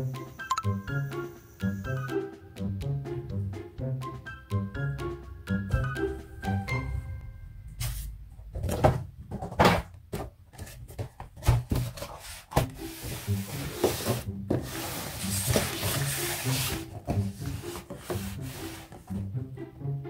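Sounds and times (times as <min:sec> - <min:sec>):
rubbing and scraping of objects: 0:07.8 - 0:19.3.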